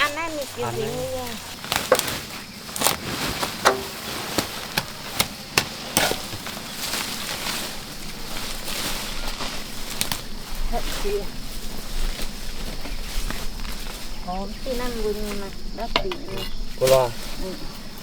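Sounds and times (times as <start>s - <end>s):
sharp knocks: 3.6s - 6.5s.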